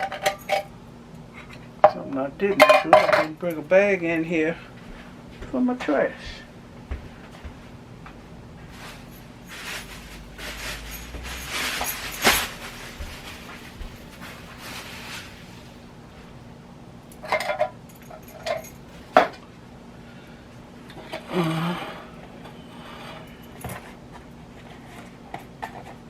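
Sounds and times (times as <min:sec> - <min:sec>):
metallic clinks of cans: 0:00.0 - 0:00.7, 0:17.1 - 0:19.4
rustling: 0:08.5 - 0:16.5.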